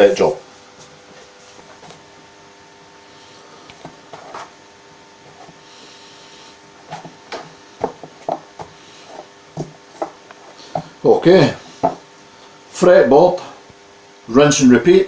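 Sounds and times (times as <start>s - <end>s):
faint steady hum: 0.0s - 15.0s
tools knocking on a workbench: 6.9s - 8.7s, 11.8s - 12.1s.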